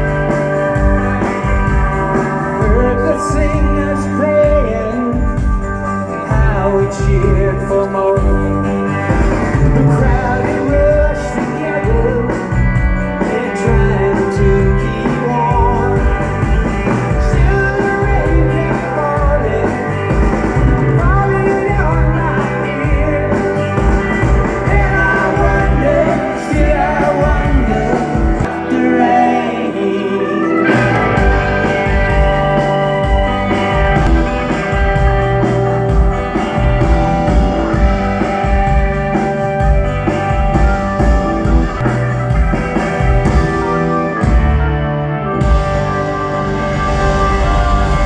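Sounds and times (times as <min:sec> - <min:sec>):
live rock band playing: 0:00.0 - 0:48.0
person singing: 0:02.5 - 0:23.8, 0:24.5 - 0:32.6, 0:47.1 - 0:48.0.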